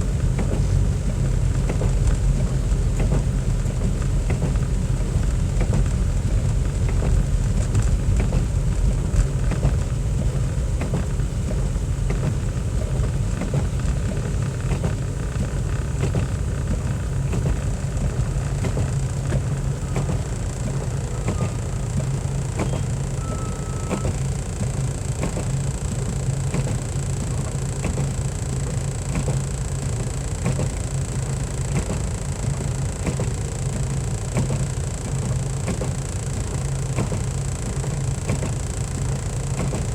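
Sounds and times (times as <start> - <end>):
road noise: 0.0 - 27.8
car engine rumble: 0.0 - 39.9.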